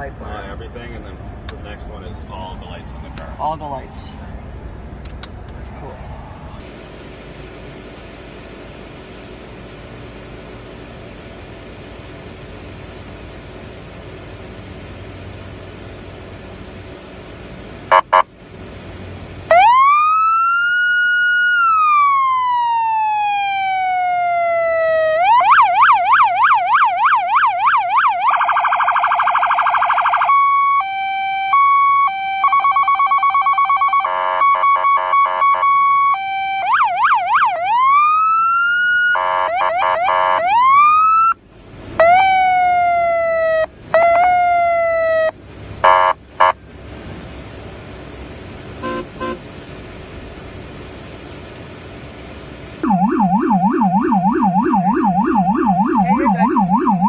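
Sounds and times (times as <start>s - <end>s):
police siren wailing and yelping: 17.9s - 18.2s, 19.5s - 41.4s, 42.0s - 46.6s, 52.8s - 57.0s
siren chirps: 17.9s - 18.2s, 19.5s - 41.4s, 42.0s - 46.6s, 52.8s - 57.0s.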